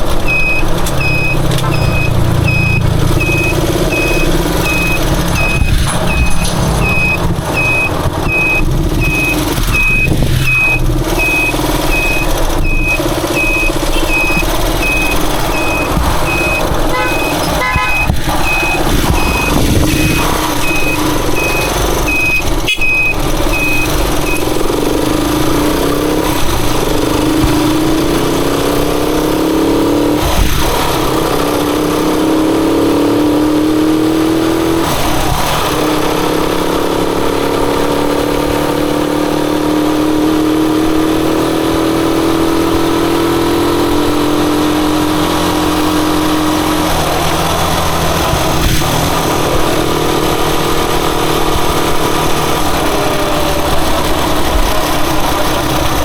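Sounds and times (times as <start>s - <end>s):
motorcycle engine shifting gears: 0.0s - 56.0s
high beeps: 0.2s - 24.6s.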